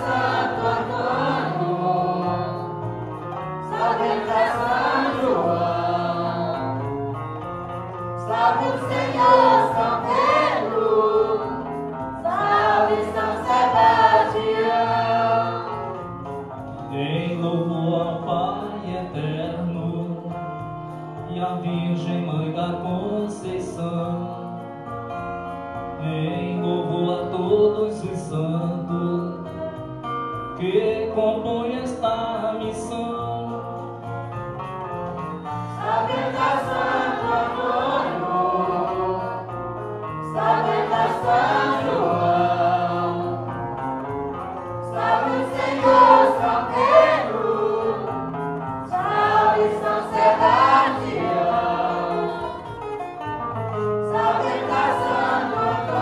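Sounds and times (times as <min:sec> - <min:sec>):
group singing a hymn: 0:00.0 - 0:07.2, 0:08.2 - 0:16.2, 0:35.4 - 0:53.0, 0:53.9 - 0:56.0
instrumental accompaniment: 0:00.0 - 0:56.0.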